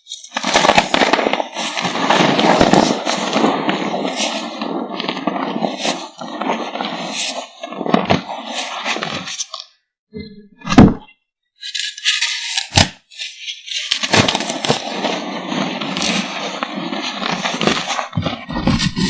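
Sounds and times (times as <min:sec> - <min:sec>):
chalk cracking: 0:00.0 - 0:09.7, 0:11.6 - 0:19.0
gritty crumbling of powder: 0:00.3 - 0:09.5.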